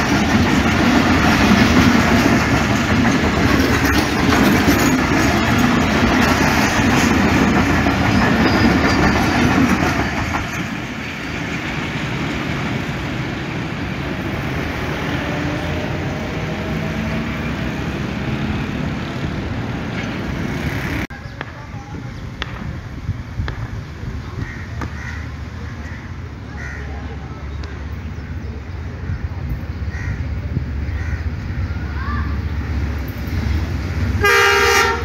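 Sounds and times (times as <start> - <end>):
train wheels clattering over rail joints: 0.0 - 12.8
train running away: 0.0 - 35.0.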